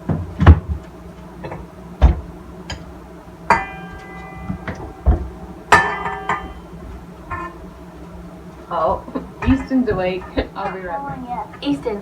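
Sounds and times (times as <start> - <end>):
sharp knocks with ringing tone: 3.5 - 7.7.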